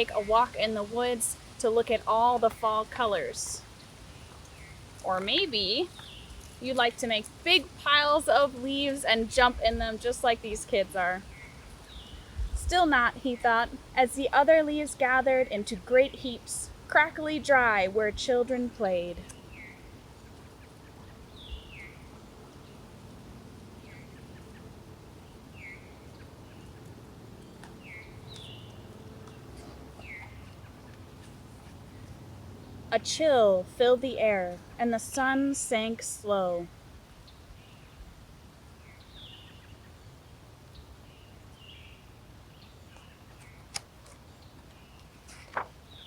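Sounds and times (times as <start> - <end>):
birds chirping: 0.0 - 38.0
low background hiss: 0.0 - 46.0
low steady background hum: 0.0 - 46.0.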